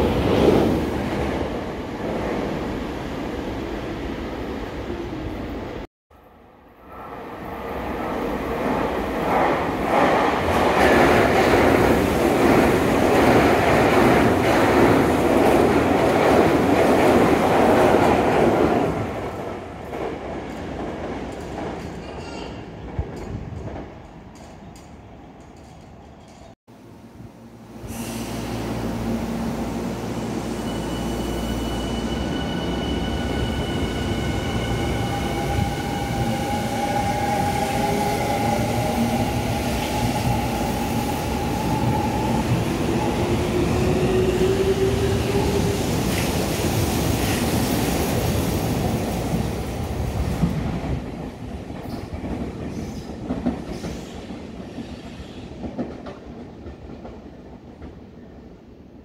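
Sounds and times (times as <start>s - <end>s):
high squeals: 30.2s - 36.1s
train wheels rumbling on rails: 30.7s - 58.4s.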